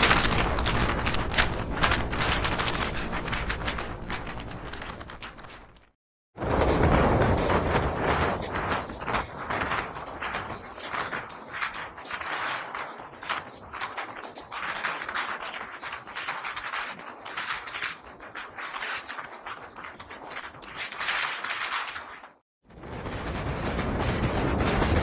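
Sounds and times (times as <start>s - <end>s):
wheels clicking on rails: 0.0s - 5.7s.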